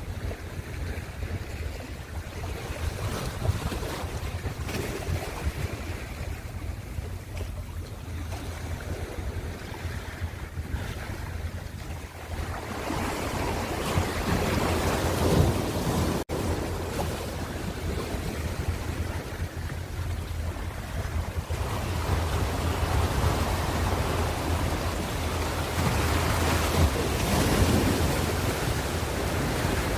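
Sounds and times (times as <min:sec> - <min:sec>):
waves washing in: 0:00.0 - 0:29.9.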